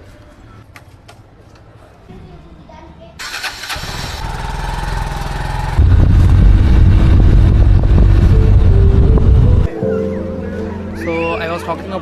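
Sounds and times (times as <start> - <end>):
vehicle engine rumbling: 3.7 - 11.0.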